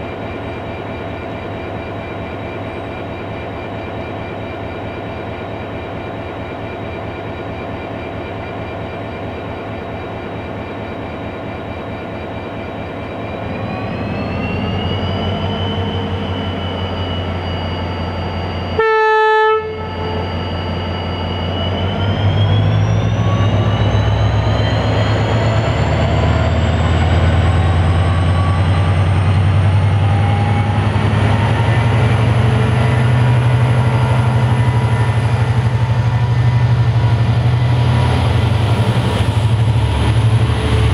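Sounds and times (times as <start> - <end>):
diesel locomotive engine revving: 13.1 - 40.9
train horn blast: 18.8 - 20.2.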